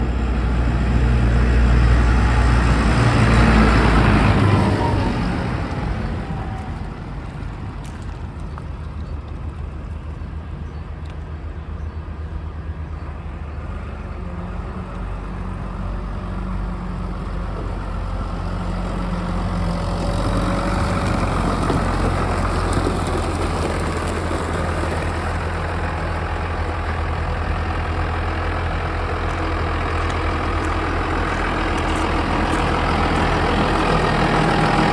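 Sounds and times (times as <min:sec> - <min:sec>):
tractor diesel engine idling: 0:12.0 - 0:34.9.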